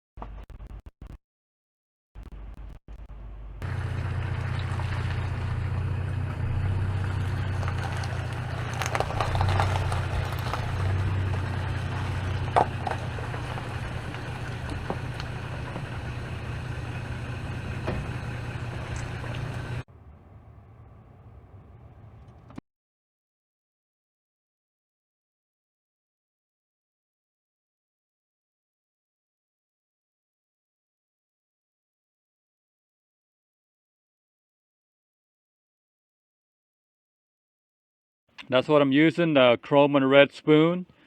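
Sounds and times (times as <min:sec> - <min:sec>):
vehicle engine humming: 0:02.2 - 0:22.6.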